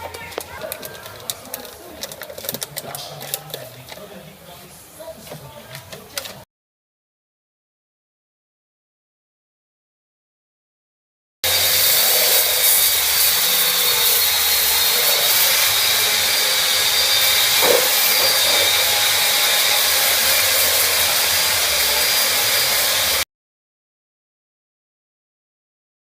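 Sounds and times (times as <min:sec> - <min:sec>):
air tool hissing with whine: 0:11.4 - 0:23.2.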